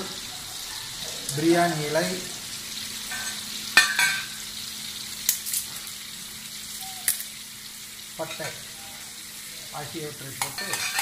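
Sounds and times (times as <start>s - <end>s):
spices sizzling in butter: 0.0s - 11.0s
spoon clinking against pan: 10.4s - 11.0s
steel spoon stirring: 10.4s - 11.0s.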